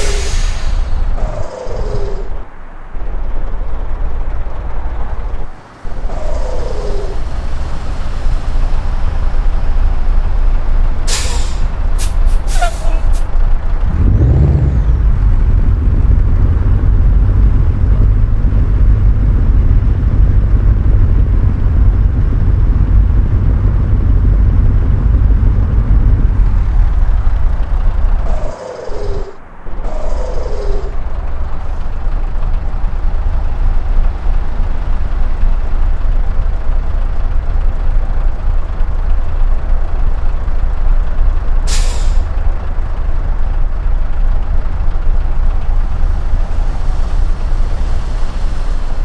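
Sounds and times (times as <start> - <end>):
air brake hisses: 0.0 - 2.3, 11.1 - 13.4, 41.7 - 42.3
diesel truck engine running: 0.0 - 49.0
truck engine revving: 0.0 - 49.0.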